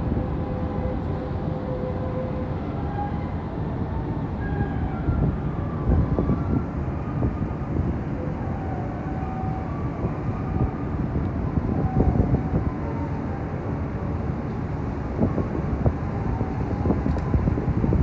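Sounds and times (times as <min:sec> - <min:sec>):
ferry engine low rumble: 0:00.0 - 0:18.0.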